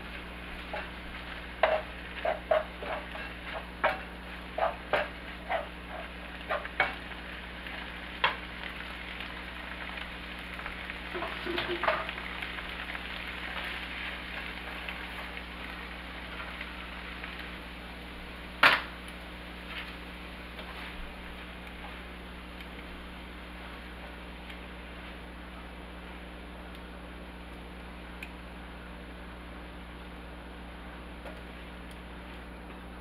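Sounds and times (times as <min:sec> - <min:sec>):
food sizzling in a frying pan: 0:00.0 - 0:29.5
spatula scraping and tapping pan: 0:00.5 - 0:08.5, 0:11.1 - 0:12.2.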